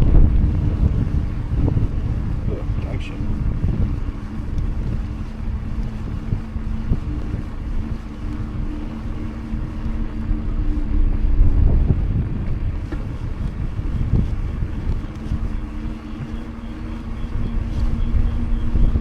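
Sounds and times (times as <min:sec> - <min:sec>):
bike tyres rumbling on pavement: 0:00.0 - 0:19.0
low two-note hum: 0:00.0 - 0:19.0
wind buffeting microphone: 0:00.0 - 0:19.0.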